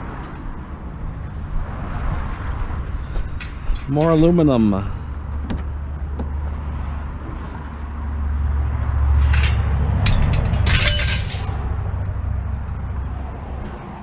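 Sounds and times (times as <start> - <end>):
steady low rumble: 0.0 - 13.4
scrap metal clinking and clattering: 3.2 - 4.8, 9.1 - 11.7.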